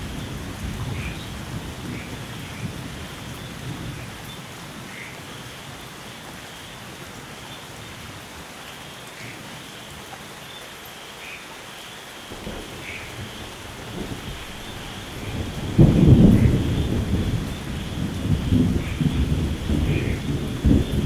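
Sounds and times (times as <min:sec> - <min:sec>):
steady rain: 0:00.0 - 0:21.0
low thunder rumble: 0:12.3 - 0:21.0.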